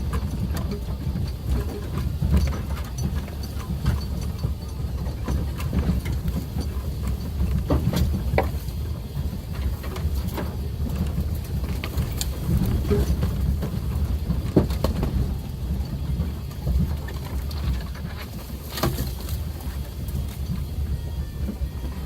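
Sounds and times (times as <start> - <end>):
car engine running low: 0.0 - 22.0
knocks and rattles: 0.0 - 22.0.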